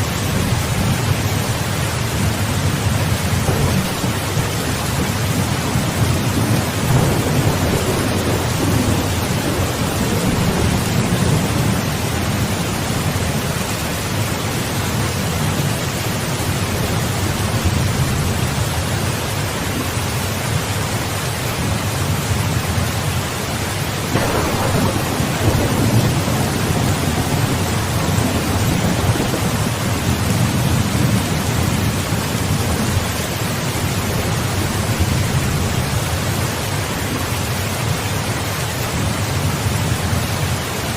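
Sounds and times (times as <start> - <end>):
steady rain: 0.0 - 40.9
thunder rumbling: 2.2 - 14.2, 24.0 - 36.1
sharp thunderclap: 3.3 - 13.4, 24.1 - 32.8.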